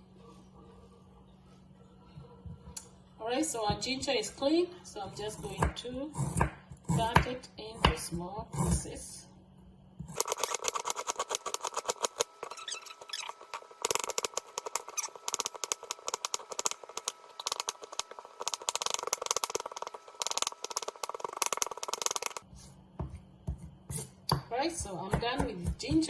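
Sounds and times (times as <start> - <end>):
knife chopping on cutting board: 23.0 - 26.0.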